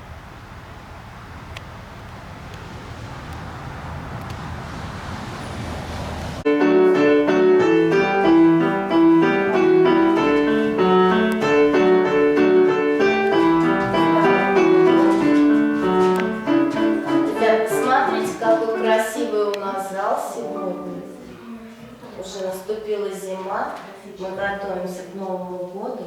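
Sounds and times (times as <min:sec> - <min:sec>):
piano music: 0:06.4 - 0:21.9.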